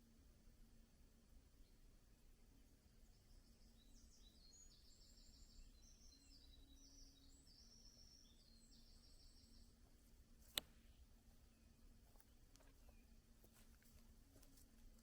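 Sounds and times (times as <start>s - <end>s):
faint trilled birdsong: 0.0s - 15.0s
sharp click: 10.5s - 10.8s.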